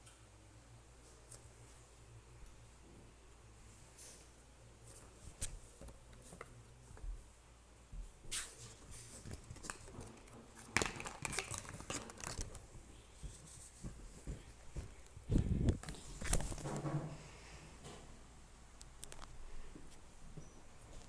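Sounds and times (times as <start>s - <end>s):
crinkling and rustling: 8.3s - 17.1s, 18.8s - 20.0s.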